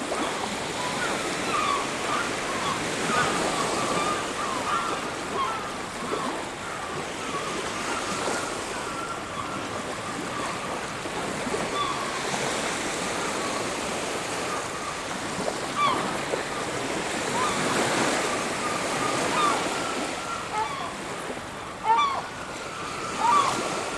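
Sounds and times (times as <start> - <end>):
bird calls: 15.7 - 23.9.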